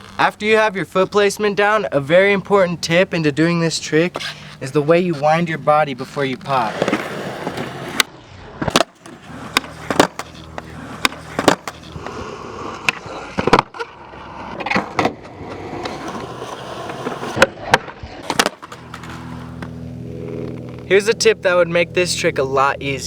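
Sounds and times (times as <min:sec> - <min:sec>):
skateboard wheels rolling on pavement: 0:00.0 - 0:21.4
skateboard pops and clacks: 0:06.7 - 0:12.2, 0:12.8 - 0:13.9, 0:14.6 - 0:19.2
low engine hum: 0:09.0 - 0:12.9, 0:18.2 - 0:23.0.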